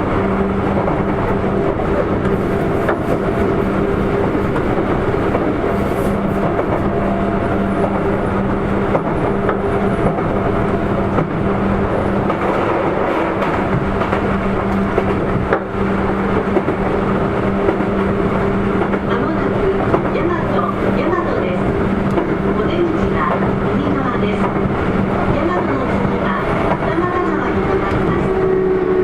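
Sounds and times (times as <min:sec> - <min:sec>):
train rolling noise: 0:00.0 - 0:29.0.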